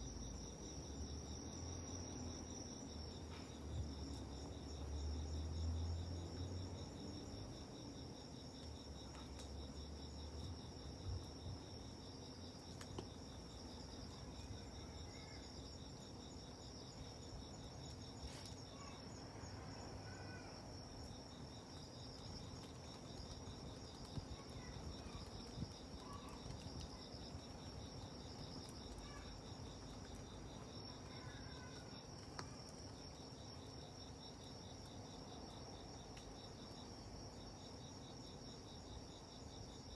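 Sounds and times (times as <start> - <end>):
insects chirping: 0.0 - 39.9
campfire crackling pops: 21.7 - 31.2, 32.0 - 33.2.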